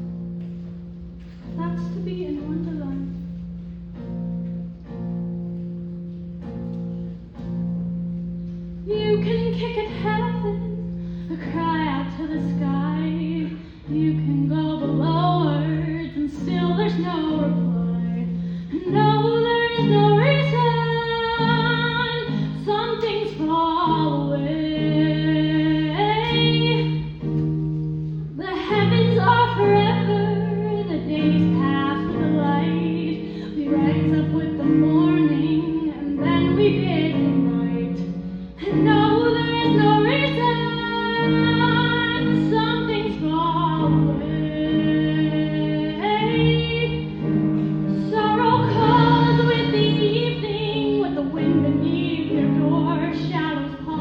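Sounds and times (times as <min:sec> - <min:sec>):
instrumental accompaniment of low notes: 0:00.0 - 0:54.0
woman singing with vibrato: 0:01.4 - 0:03.3, 0:08.8 - 0:27.3, 0:28.3 - 0:54.0
singer breathing: 0:10.9 - 0:11.5, 0:18.3 - 0:18.8.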